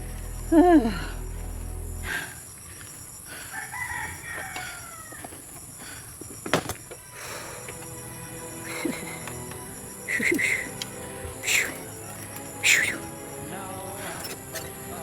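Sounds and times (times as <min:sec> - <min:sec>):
rooster crowing: 0:03.4 - 0:05.5.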